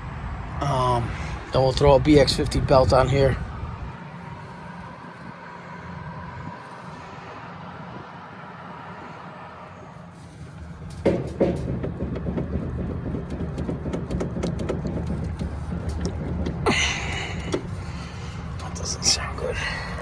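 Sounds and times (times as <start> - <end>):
belt-driven blower rumbling: 0.0 - 20.0
blower clicking and knocking: 10.8 - 18.9.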